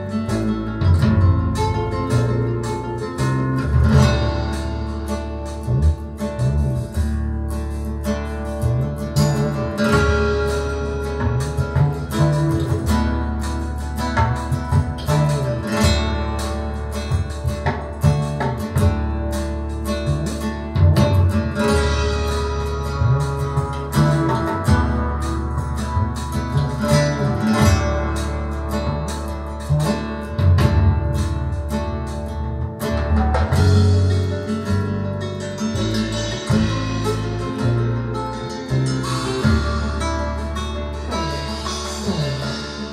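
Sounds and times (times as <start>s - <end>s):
guitar-led music with deep bass: 0.0s - 42.9s.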